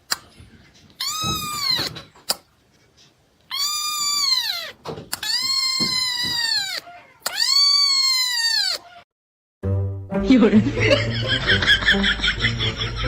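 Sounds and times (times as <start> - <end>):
cat meowing: 1.0 - 2.0, 3.5 - 9.0.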